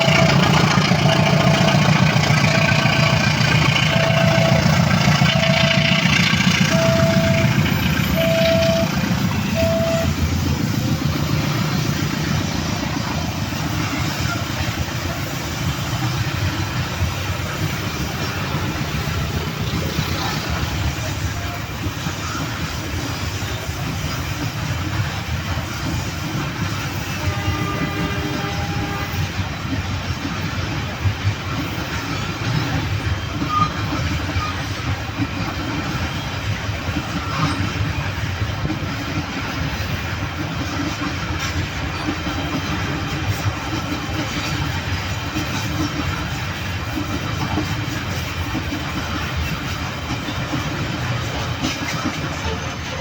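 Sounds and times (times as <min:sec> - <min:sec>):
train rumbling past: 0:00.0 - 0:53.0
electronic beep: 0:08.2 - 0:10.1.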